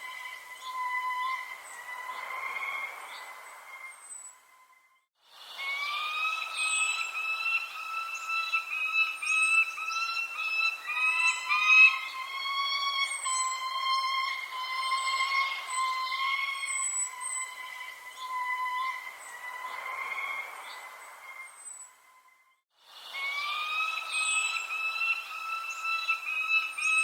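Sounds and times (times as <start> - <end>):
birds chirping: 5.5 - 22.4, 23.0 - 27.0
steady whistling tone: 5.6 - 22.0, 23.1 - 27.0.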